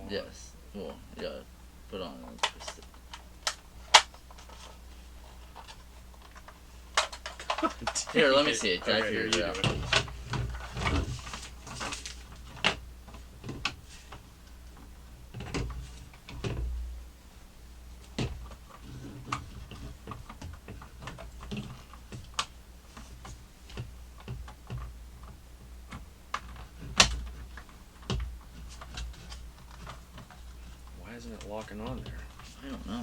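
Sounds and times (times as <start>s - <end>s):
hard plastic parts clicking: 5.6s - 11.1s.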